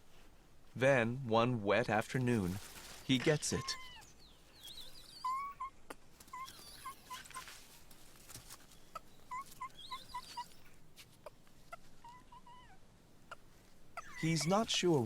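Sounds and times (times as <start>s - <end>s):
monkey squeaking calls: 3.5s - 7.6s, 8.8s - 13.4s, 14.0s - 14.9s.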